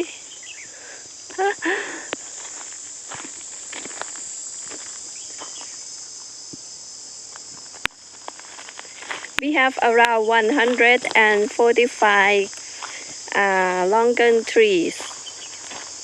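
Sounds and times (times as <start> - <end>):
insects chorus: 0.0 - 16.0.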